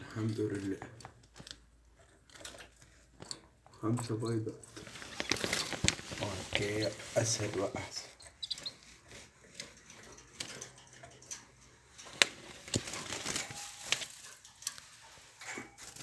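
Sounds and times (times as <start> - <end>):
birds clicking and rustling: 0.0 - 16.0
short high bird chirps: 8.4 - 8.7.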